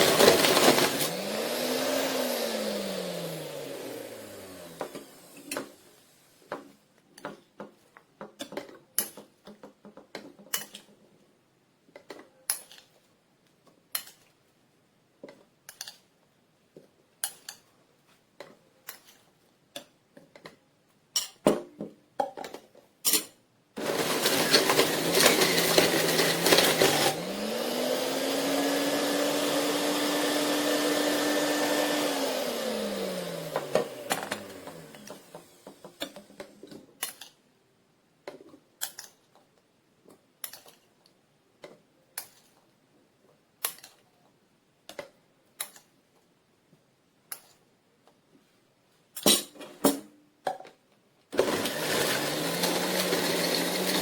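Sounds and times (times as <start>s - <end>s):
juice extractor motor running: 0.0s - 5.4s, 23.8s - 35.8s, 51.4s - 54.0s
plastic parts clicking and knocking: 6.5s - 11.2s, 11.8s - 13.0s, 18.4s - 23.4s, 38.2s - 46.3s.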